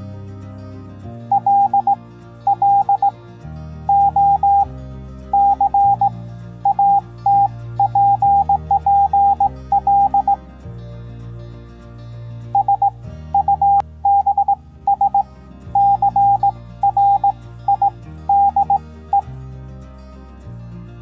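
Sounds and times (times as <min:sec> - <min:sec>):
soft background music chords: 0:00.0 - 0:21.0
morse code beeps: 0:01.3 - 0:03.1, 0:03.9 - 0:04.7, 0:05.3 - 0:10.4, 0:12.5 - 0:19.3.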